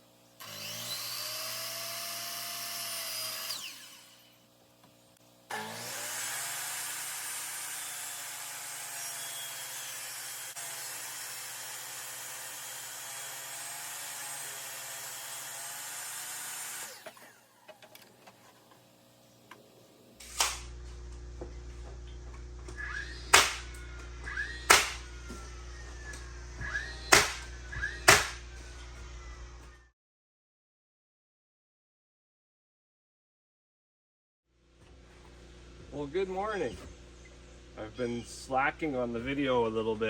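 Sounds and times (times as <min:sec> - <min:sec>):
power tool running: 0:00.4 - 0:04.5, 0:05.5 - 0:17.8, 0:20.2 - 0:29.9
sharp cracks: 0:23.3 - 0:23.8, 0:24.7 - 0:25.1, 0:27.1 - 0:27.5, 0:28.1 - 0:28.4.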